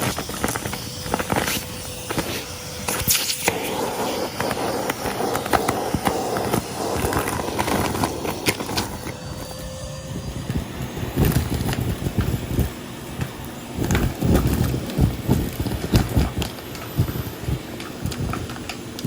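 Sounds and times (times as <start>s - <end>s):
vacuum motor tone: 0.0s - 19.0s
vacuum sucking up debris: 0.0s - 19.0s.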